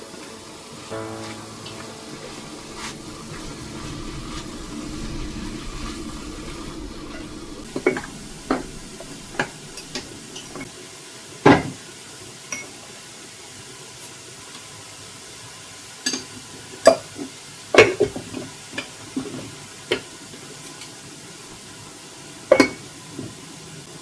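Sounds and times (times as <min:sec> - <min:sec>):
low steady hum: 0:00.9 - 0:10.7.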